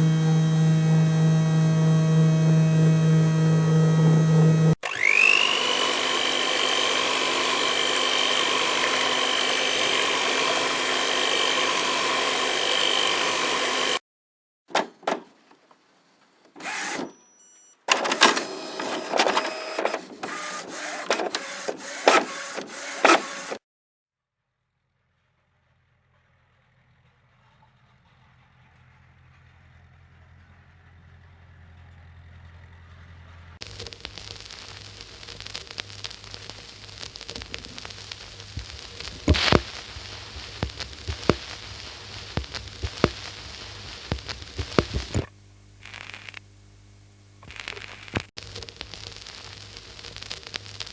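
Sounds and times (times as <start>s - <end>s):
small electric motor whining: 0.0s - 14.0s, 16.6s - 23.6s, 38.6s - 46.4s
engine idling hum: 24.9s - 33.6s
loud hiss: 33.6s - 46.4s.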